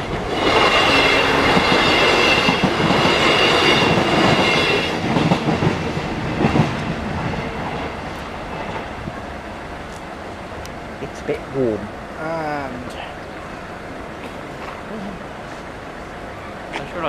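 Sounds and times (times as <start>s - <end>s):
train wheel clacks: 0.0s - 9.1s
passenger train passing: 0.0s - 17.0s.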